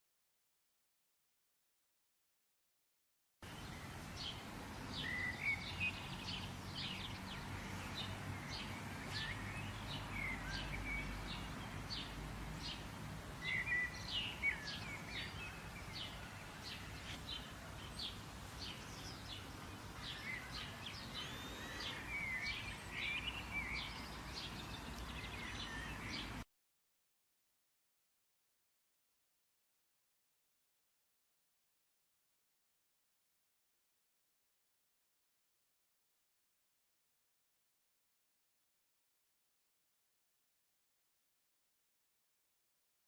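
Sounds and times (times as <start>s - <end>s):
songbirds chirping: 3.4s - 26.5s.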